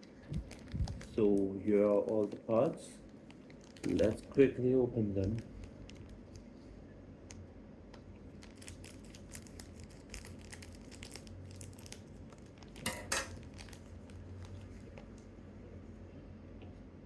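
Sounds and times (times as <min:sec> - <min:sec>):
plastic packaging crinkling: 0:00.0 - 0:06.7, 0:08.2 - 0:15.4.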